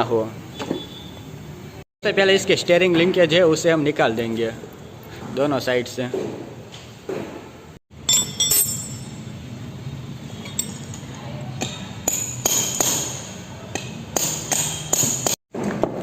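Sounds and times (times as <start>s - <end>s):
metal tools clinking on metal: 8.0s - 9.3s, 10.4s - 11.2s.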